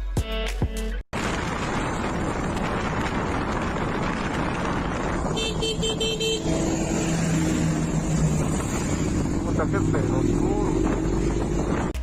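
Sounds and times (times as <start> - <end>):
music: 0.0 - 1.0
road traffic rushing: 1.2 - 12.0
car horn: 5.2 - 7.2.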